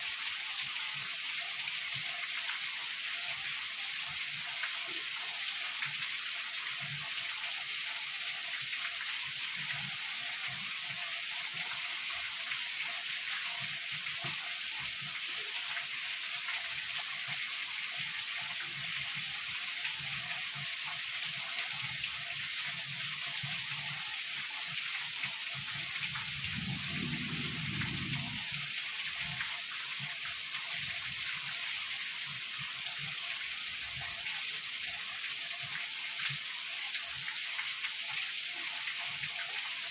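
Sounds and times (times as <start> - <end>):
heavy rain falling: 25.9 - 29.8
low rumble: 26.4 - 28.5.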